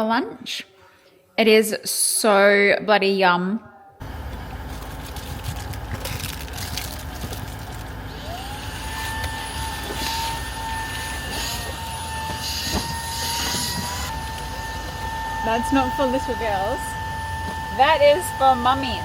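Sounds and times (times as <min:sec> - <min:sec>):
high-pitched whine: 0:04.0 - 0:19.0
machine rumbling: 0:04.0 - 0:19.0.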